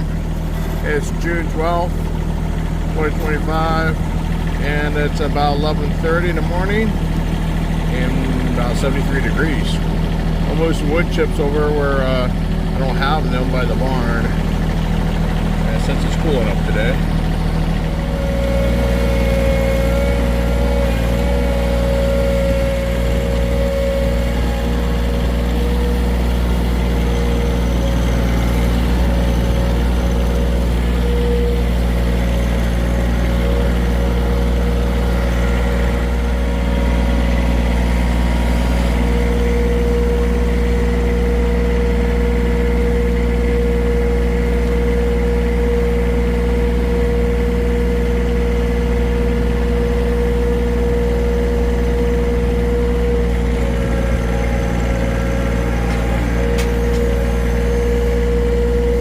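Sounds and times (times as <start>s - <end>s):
steady whine: 0.0s - 59.0s
tractor engine running: 0.0s - 59.0s.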